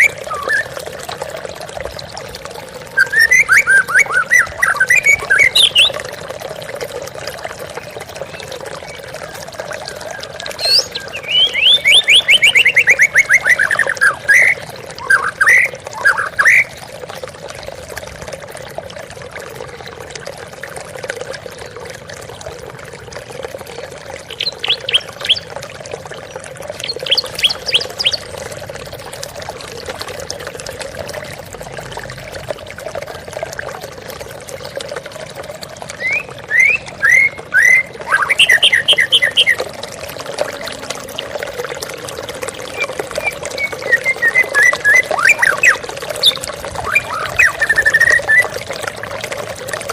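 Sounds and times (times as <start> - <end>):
bird singing trills and whistles: 0.0 - 0.8, 3.0 - 6.0, 10.2 - 16.7, 24.3 - 25.5, 26.8 - 28.3, 36.0 - 39.7, 42.6 - 48.6.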